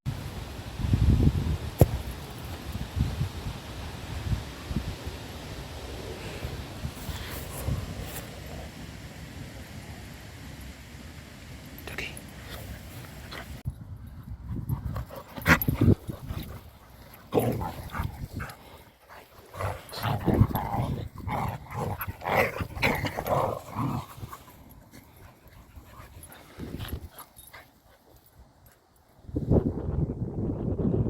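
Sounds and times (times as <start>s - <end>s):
dogs growling and yapping: 14.6s - 28.2s.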